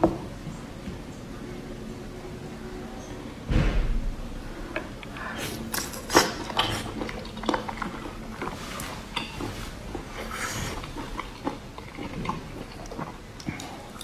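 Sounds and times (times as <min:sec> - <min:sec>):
wet chewing and smacking: 0:05.0 - 0:14.0.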